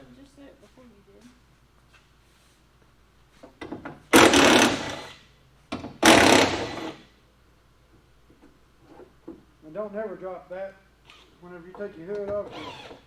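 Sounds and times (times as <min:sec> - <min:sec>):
power tool bursts: 0:04.1 - 0:07.1, 0:12.4 - 0:13.0.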